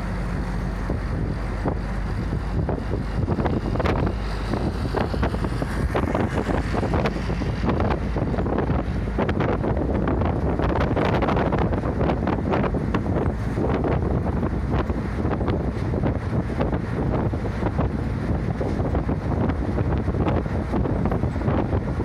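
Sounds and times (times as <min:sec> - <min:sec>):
bus engine and road noise: 0:00.0 - 0:22.0
wind buffeting microphone: 0:00.0 - 0:22.0.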